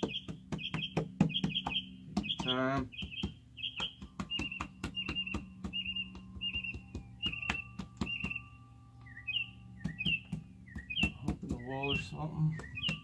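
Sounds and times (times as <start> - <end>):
bird chirping: 0.0 - 13.0
steady low hum: 0.0 - 13.0.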